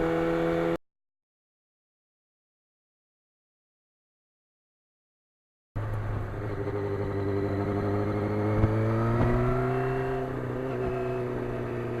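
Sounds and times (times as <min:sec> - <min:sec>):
motorcycle engine accelerating: 0:00.0 - 0:00.8, 0:05.8 - 0:12.0.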